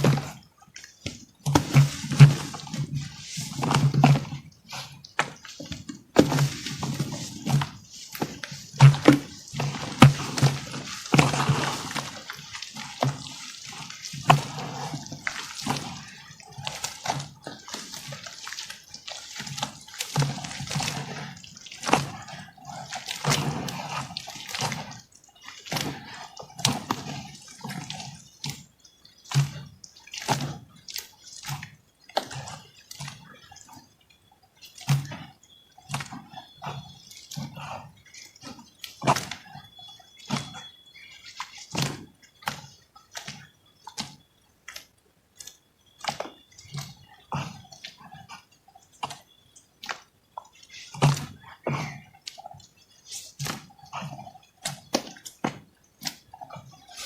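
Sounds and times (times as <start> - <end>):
water dripping and sloshing: 0.0 - 57.0
wet lumps crunching by hand: 1.4 - 25.0
dull thuds: 5.2 - 12.3.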